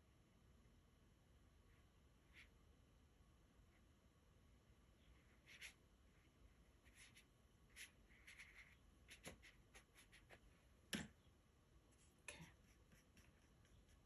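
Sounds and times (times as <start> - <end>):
brush strokes on paper: 5.1 - 10.5.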